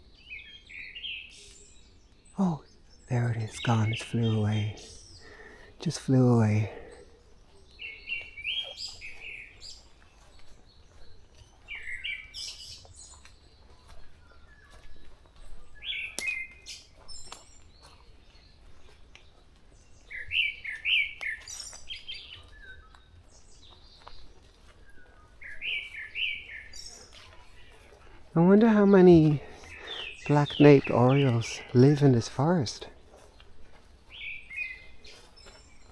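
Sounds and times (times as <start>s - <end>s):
high bird chirps: 0.2s - 18.0s.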